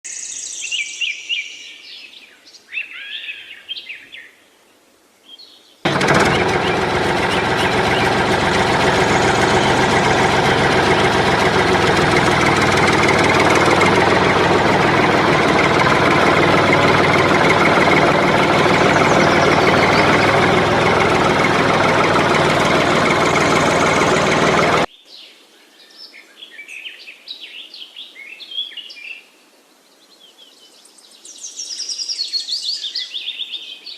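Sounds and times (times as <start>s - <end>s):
birds chirping: 5.9s - 24.9s
engine running: 5.9s - 24.9s.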